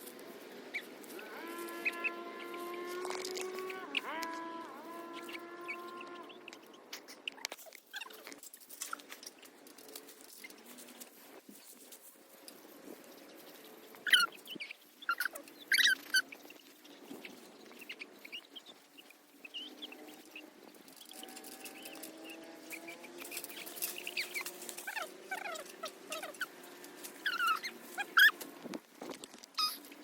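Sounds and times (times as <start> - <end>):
birds chirping: 0.6 - 8.3, 12.9 - 28.4.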